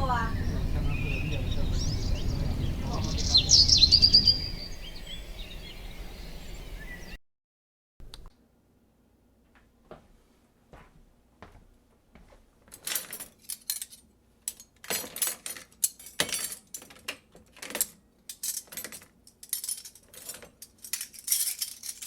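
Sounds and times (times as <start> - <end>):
metallic jingling and rattling: 12.7 - 22.0.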